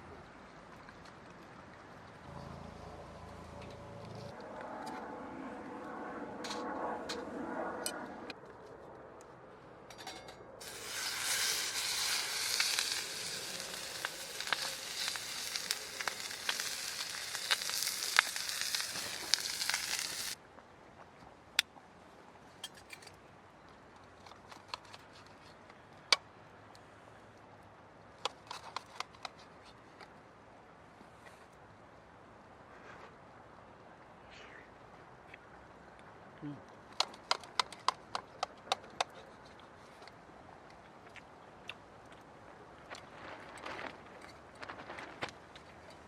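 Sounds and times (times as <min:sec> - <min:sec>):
fire crackling: 0:10.6 - 0:20.4
food sizzling and popping: 0:10.6 - 0:20.4.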